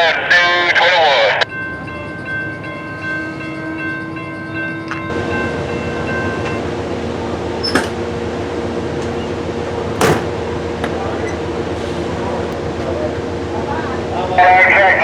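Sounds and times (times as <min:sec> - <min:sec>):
train rumbling and rattling past: 0:00.1 - 0:15.0
sharp bangs: 0:09.9 - 0:10.5.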